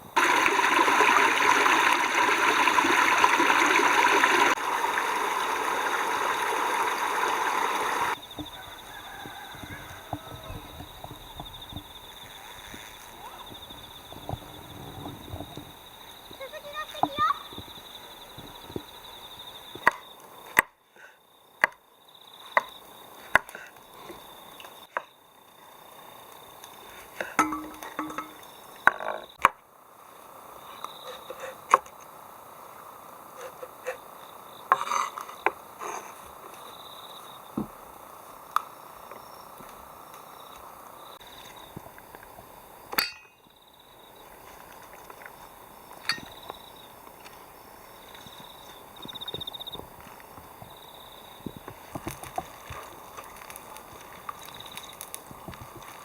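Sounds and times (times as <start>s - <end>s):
steady background hiss: 0.0s - 56.0s
sharp knock with short ring: 27.4s - 28.4s.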